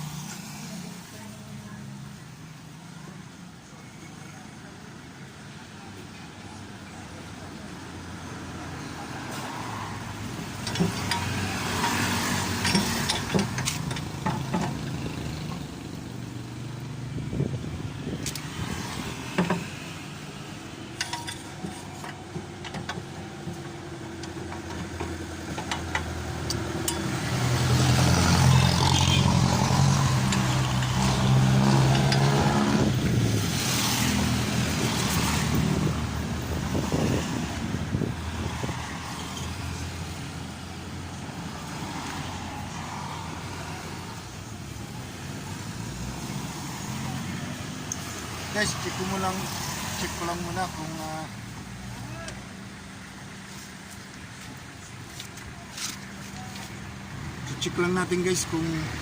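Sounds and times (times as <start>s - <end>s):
metallic clicks and knocks: 10.6s - 15.6s, 20.9s - 27.2s.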